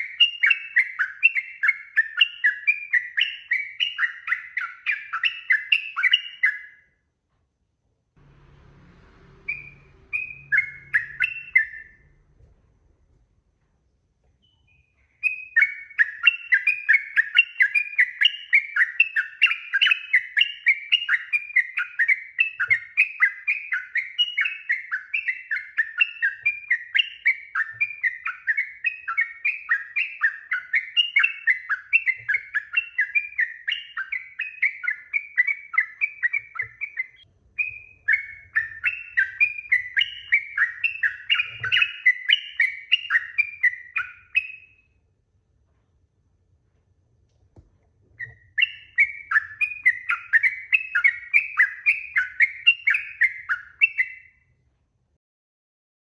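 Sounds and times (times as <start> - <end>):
bird singing bubbly notes: 9.4 - 12.2, 14.4 - 44.8, 48.2 - 54.4.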